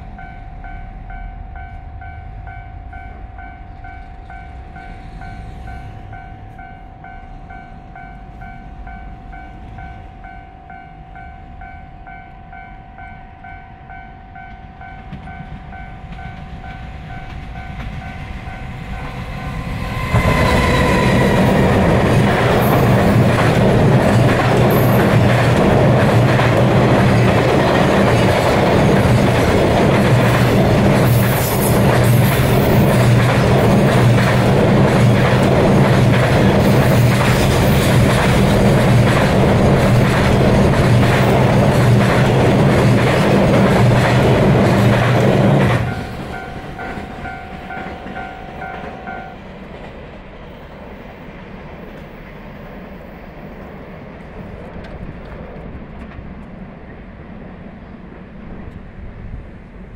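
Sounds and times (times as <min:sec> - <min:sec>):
distant train rumble: 0:00.0 - 0:59.9
train wheels clacking over joints: 0:14.5 - 0:50.1.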